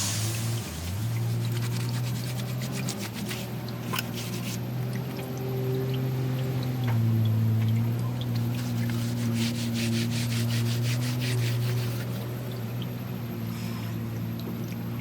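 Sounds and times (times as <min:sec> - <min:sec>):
rhythmic rasping strokes: 0:00.0 - 0:04.6, 0:08.3 - 0:12.6.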